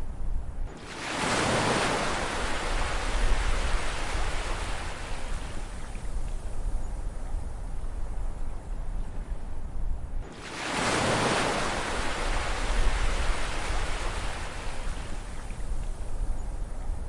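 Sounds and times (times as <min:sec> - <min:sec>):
low rumble of sea: 0:00.0 - 0:17.0
ocean wave breaking: 0:00.8 - 0:05.5, 0:10.3 - 0:15.3.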